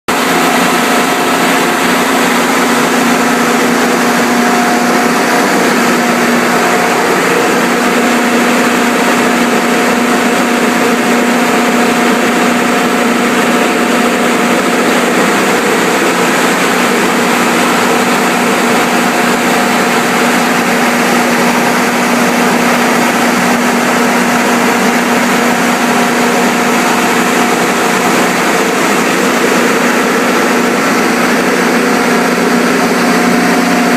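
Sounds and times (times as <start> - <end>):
generator engine droning: 0.1 - 33.9.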